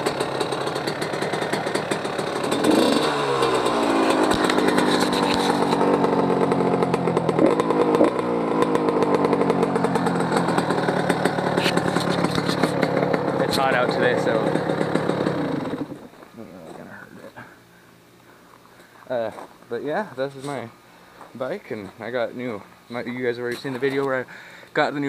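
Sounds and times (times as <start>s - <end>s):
two-stroke engine revving: 0.0s - 16.1s.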